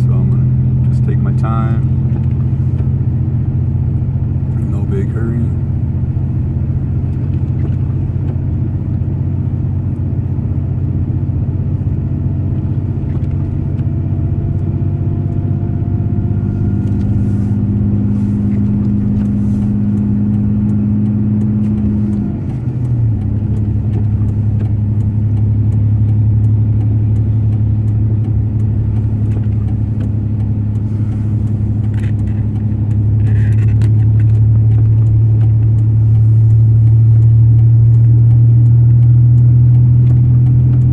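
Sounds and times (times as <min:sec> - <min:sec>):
road noise: 0:00.0 - 0:40.9
truck engine drone: 0:00.0 - 0:40.9.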